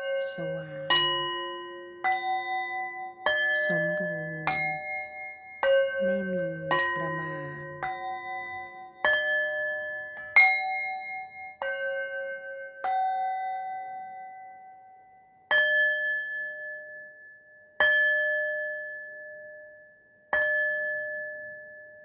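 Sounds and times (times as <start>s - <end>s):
struck bell tones: 5.8s - 8.8s.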